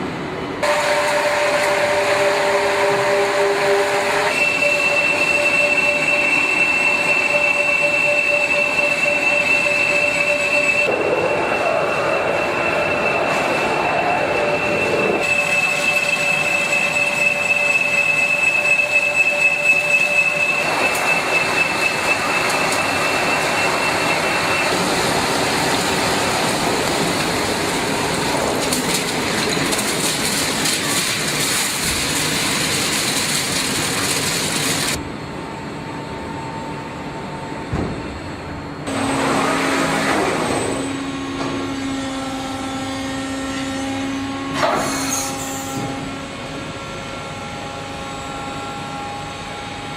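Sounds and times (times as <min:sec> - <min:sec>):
machine cutting metal: 0:00.6 - 0:35.0
high steady tone: 0:04.2 - 0:25.2.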